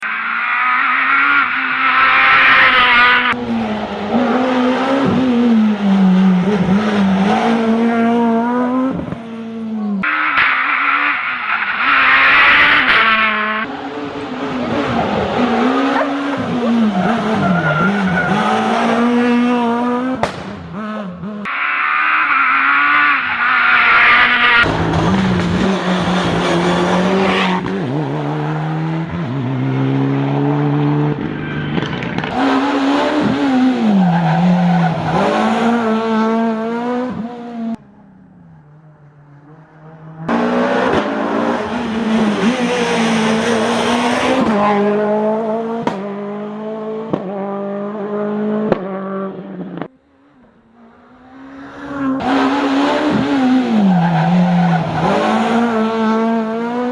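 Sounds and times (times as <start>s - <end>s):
rally car engines revving: 0.0s - 56.9s
tyre squeal: 16.0s - 18.6s.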